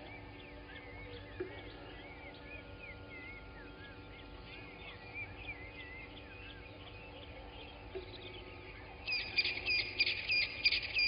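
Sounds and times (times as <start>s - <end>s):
birds whistling: 0.0s - 8.4s.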